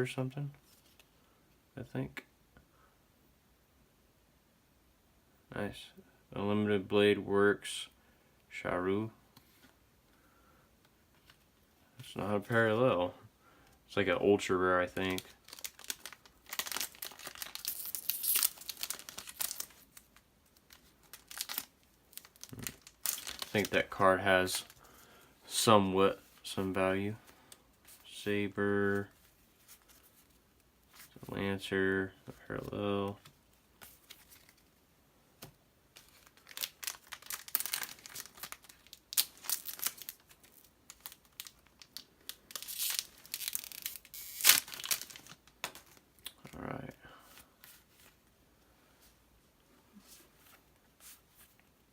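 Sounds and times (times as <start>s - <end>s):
cards rustling: 14.8s - 25.1s, 32.6s - 34.7s, 35.4s - 46.0s
foil wrapper crinkling: 15.0s - 25.0s, 36.0s - 46.0s.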